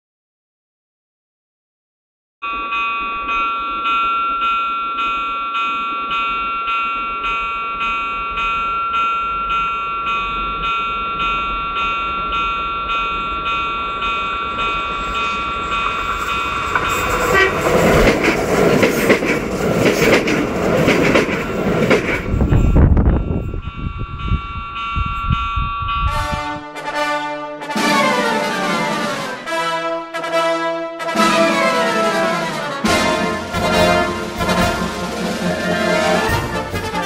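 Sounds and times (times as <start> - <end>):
train rumble and clatter: 2.7 - 29.6, 31.0 - 37.0
pulsing warning tone: 10.2 - 18.4.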